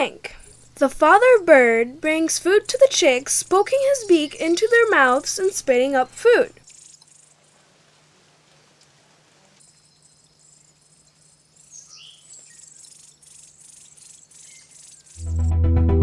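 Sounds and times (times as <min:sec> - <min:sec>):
insects calling in high pulses: 0:00.3 - 0:01.5, 0:02.2 - 0:05.5, 0:06.6 - 0:07.9, 0:09.6 - 0:15.2
short bird chirps: 0:11.6 - 0:15.2.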